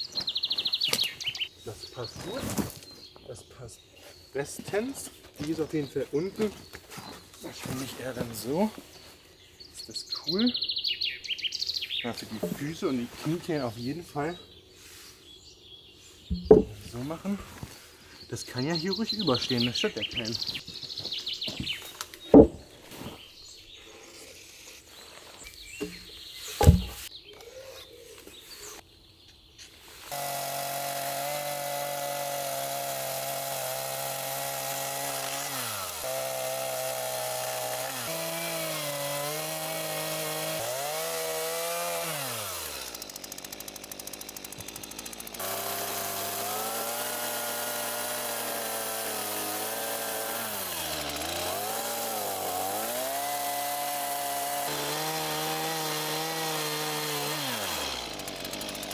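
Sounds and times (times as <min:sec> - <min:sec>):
chainsaw cutting wood: 0:12.3 - 0:13.4, 0:16.3 - 0:17.2, 0:26.6 - 0:27.1, 0:30.0 - 0:58.9
sharp knocks: 0:16.3 - 0:16.8, 0:22.3 - 0:22.7, 0:26.6 - 0:27.1.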